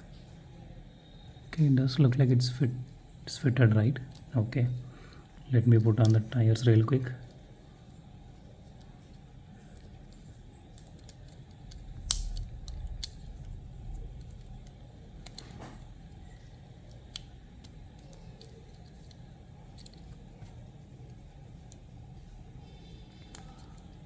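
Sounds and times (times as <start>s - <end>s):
toy car parts clicking: 9.7s - 13.3s, 14.2s - 21.9s, 22.8s - 24.0s.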